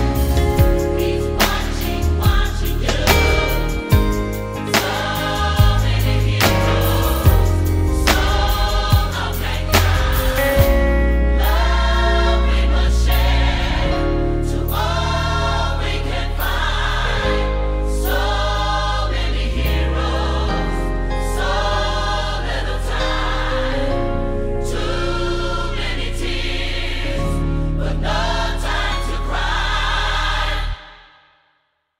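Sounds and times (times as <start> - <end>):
band with heavy bass line: 0.0 - 15.4
choir singing: 0.0 - 31.5.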